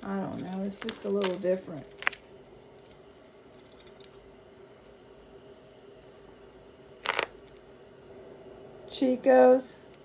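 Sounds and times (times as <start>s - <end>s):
jewelry clattering: 0.0s - 6.2s, 7.0s - 7.5s
steady low hum: 0.0s - 10.0s
jewelry clicking: 0.2s - 5.0s.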